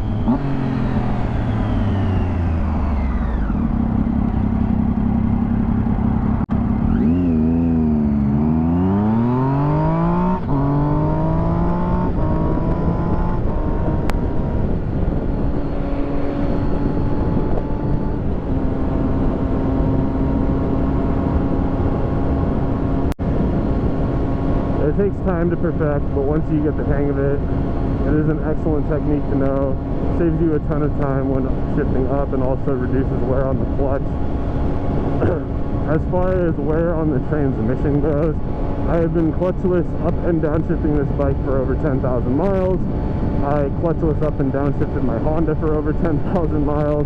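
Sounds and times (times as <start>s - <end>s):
motorcycle engine revving: 0.0s - 47.0s
wind rush over microphone: 9.9s - 47.0s.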